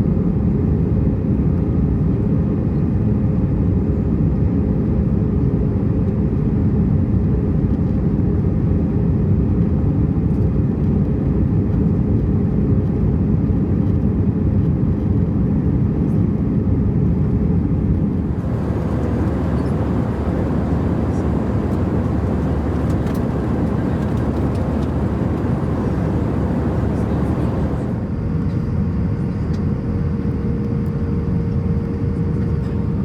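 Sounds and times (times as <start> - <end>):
airplane cabin engine rumble: 17.7 - 33.0
faint steady hum: 18.2 - 28.0.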